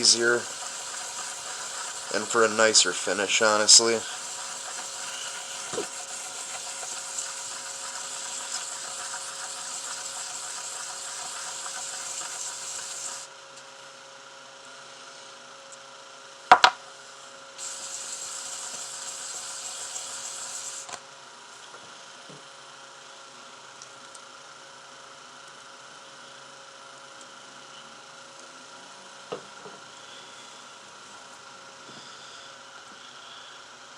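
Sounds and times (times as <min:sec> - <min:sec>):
wet sandpaper rubbing metal: 0:00.0 - 0:13.3, 0:17.6 - 0:20.9.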